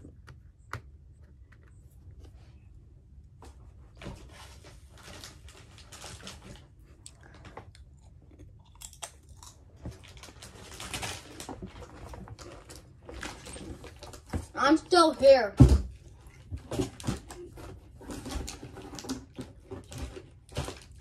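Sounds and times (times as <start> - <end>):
chips crunching while chewed: 5.2 - 13.1.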